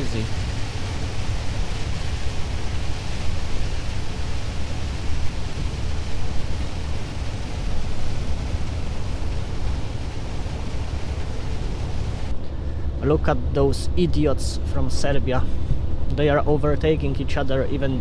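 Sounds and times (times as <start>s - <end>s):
truck engine drone: 0.0s - 12.3s
tyres hissing on wet road: 0.0s - 12.3s.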